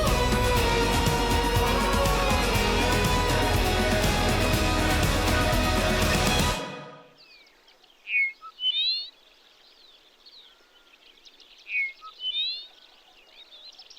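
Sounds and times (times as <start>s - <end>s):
music: 0.0s - 7.1s
faint chorus of birds: 7.0s - 13.9s.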